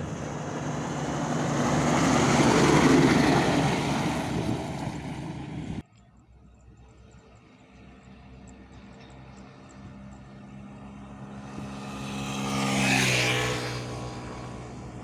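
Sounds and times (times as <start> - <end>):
tyre and wind rush: 0.0 - 5.8
truck engine drone: 0.0 - 12.8.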